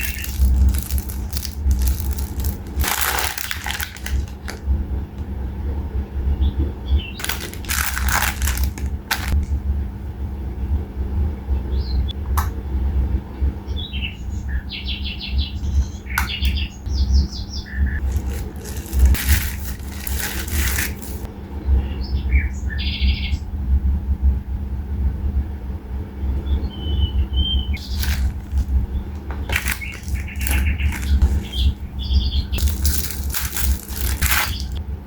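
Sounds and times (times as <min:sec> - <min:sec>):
small birds chirping: 0:00.0 - 0:04.5, 0:13.7 - 0:23.4, 0:26.2 - 0:34.8
low rumble: 0:00.0 - 0:13.6, 0:23.6 - 0:35.0
brief rustling: 0:07.2 - 0:09.5, 0:18.0 - 0:21.3, 0:27.8 - 0:31.8, 0:32.6 - 0:34.8.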